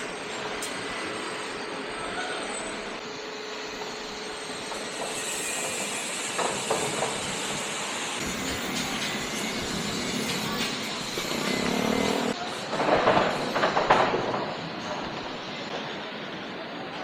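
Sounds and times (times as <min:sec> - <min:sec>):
urban traffic: 0:08.1 - 0:17.0.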